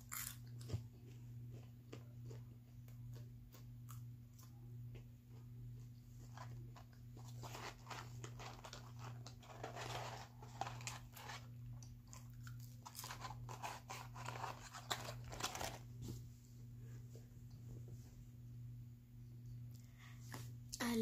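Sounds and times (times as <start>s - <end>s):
chewing and crunching food: 0.0s - 15.8s
steady low hum: 0.0s - 21.0s.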